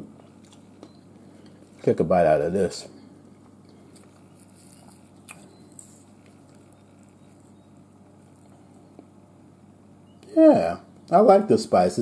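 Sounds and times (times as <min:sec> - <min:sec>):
chewing food: 0:00.2 - 0:01.9, 0:03.4 - 0:09.2.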